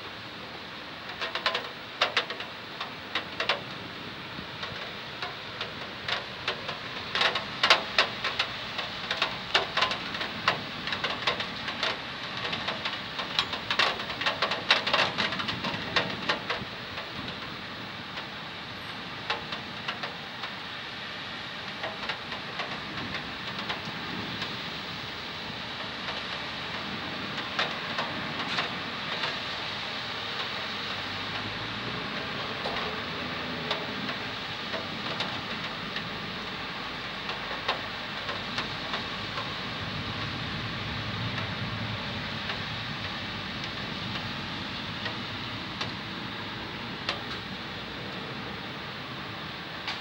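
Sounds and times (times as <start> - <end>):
rain hiss: 0.0 - 50.0
raindrops tapping on hard surface: 1.1 - 48.6, 49.8 - 50.0.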